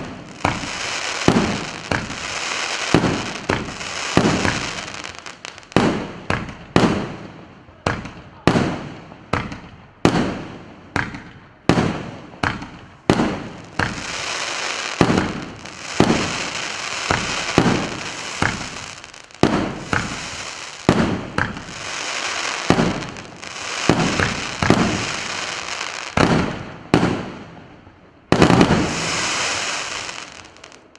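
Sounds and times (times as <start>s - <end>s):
firework hissing and crackling: 0.0s - 6.5s, 12.4s - 26.5s, 28.3s - 30.9s
firework bangs: 0.0s - 7.2s, 7.9s - 27.6s, 28.3s - 30.9s.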